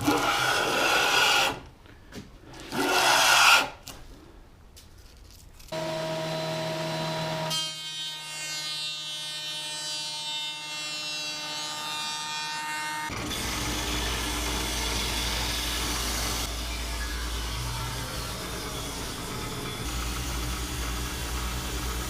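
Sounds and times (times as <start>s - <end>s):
power tool motor whine: 5.8s - 7.5s.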